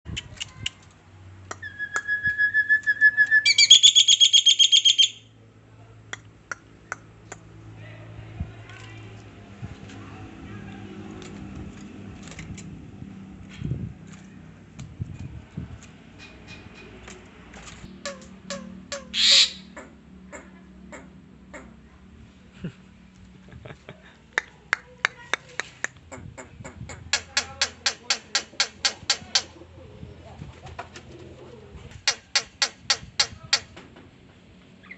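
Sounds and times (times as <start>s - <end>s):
songbird trilling: 1.6s - 5.2s, 18.0s - 20.4s
bird short sharp calls: 18.0s - 19.8s
sharp clicks: 27.1s - 29.6s, 32.0s - 33.7s.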